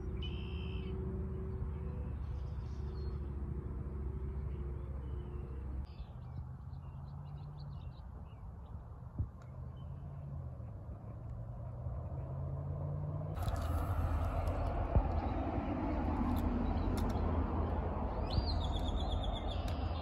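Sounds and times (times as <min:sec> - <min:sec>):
steady low rumble: 0:13.3 - 0:20.0
small birds chirping: 0:16.3 - 0:20.0.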